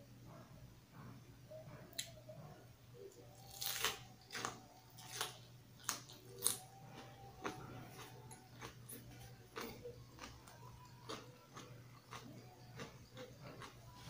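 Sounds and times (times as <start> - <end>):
crunchy chewing of leafy vegetables: 3.0 - 14.0.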